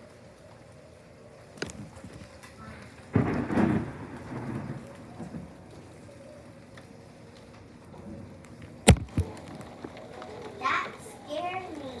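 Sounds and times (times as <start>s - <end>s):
rain falling: 0.0s - 12.0s
loud thunder crack: 3.1s - 5.8s.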